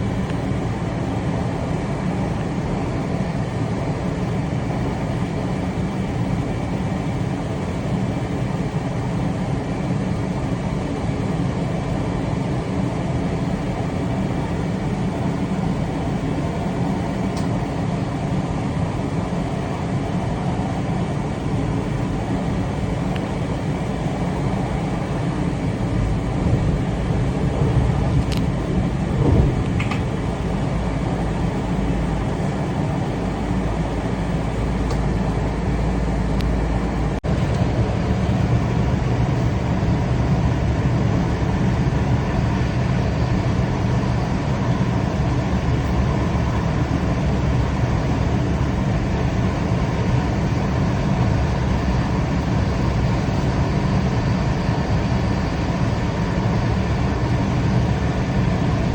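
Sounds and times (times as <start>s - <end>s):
moving train rumble: 0.0s - 58.9s.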